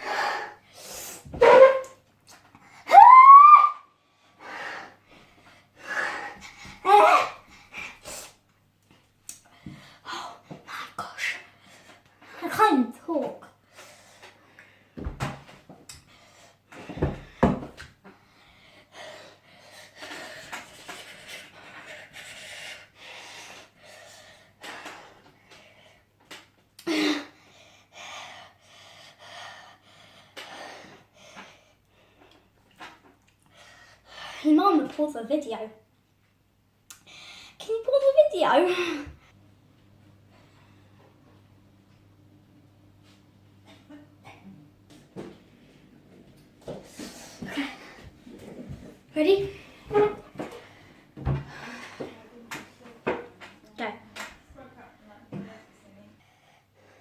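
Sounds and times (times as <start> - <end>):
person breathing hard and gasping: 3.9 - 8.4, 18.2 - 26.1.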